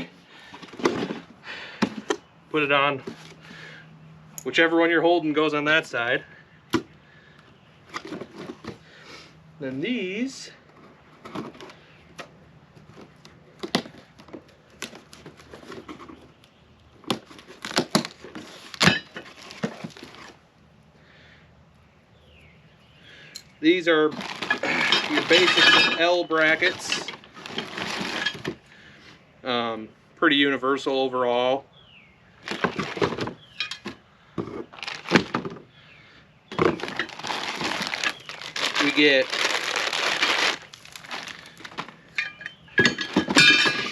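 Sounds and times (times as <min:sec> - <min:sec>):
packaging rustling: 0:17.1 - 0:20.4, 0:24.1 - 0:28.6, 0:32.4 - 0:35.6, 0:36.5 - 0:43.9
metal brackets clanking: 0:24.4 - 0:27.3, 0:42.0 - 0:43.9.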